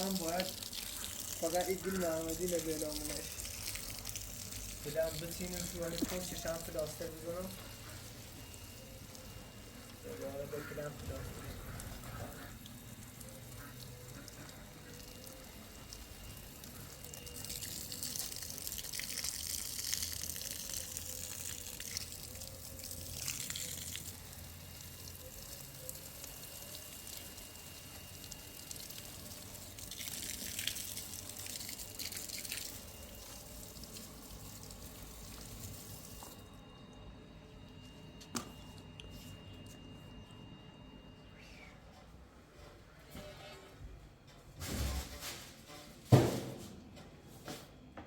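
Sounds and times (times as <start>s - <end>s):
water running from a tap: 0.0s - 36.4s.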